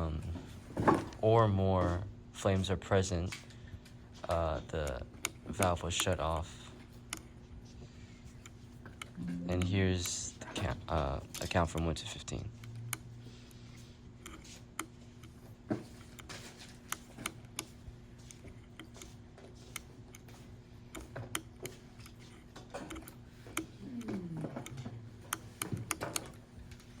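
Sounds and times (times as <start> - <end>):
faint low hum: 9.0 - 13.7.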